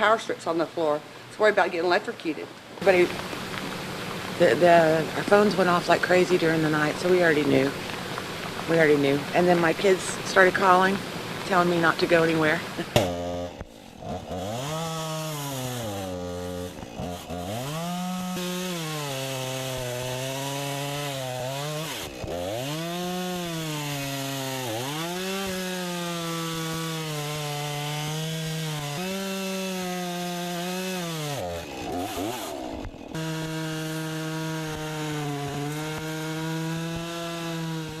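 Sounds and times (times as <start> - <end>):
engine revving: 11.4 - 38.0.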